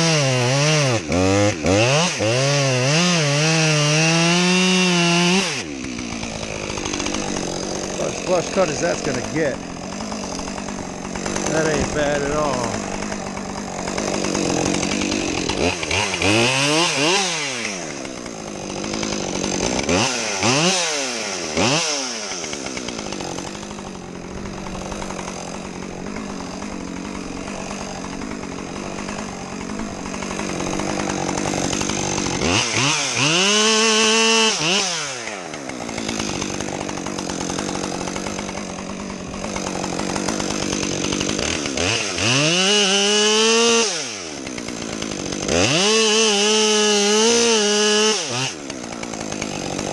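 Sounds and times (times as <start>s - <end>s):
chainsaw idling and revving: 0.0s - 49.9s.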